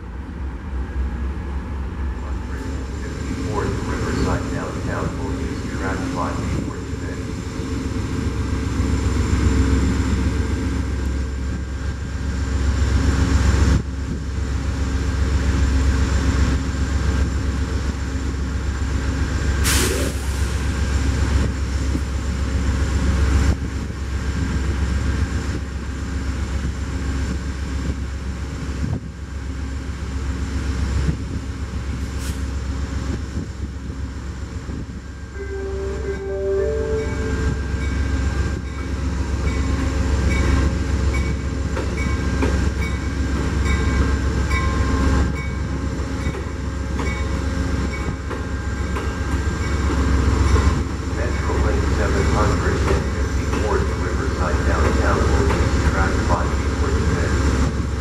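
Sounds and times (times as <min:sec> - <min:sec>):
train rumbling: 0:00.0 - 0:58.0
steady tones: 0:35.2 - 0:39.8.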